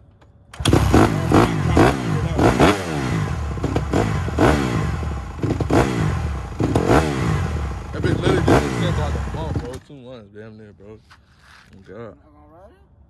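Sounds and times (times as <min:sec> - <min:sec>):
dirt bike engine revving: 0:00.6 - 0:09.8.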